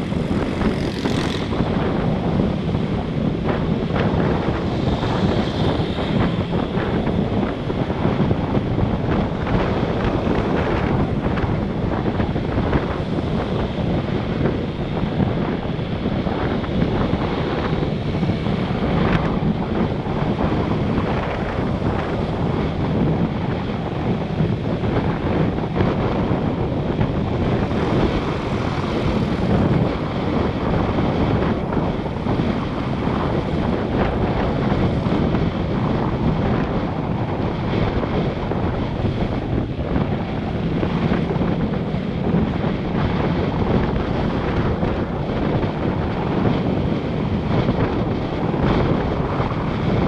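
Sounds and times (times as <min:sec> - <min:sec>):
motorbike engine: 0:00.0 - 0:20.4
surrounding traffic: 0:00.0 - 0:50.0
wind buffeting microphone: 0:00.0 - 0:50.0.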